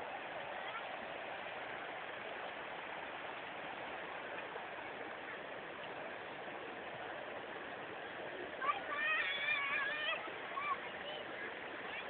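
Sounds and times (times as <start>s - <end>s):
waterfall rushing and splashing: 0.0s - 12.0s.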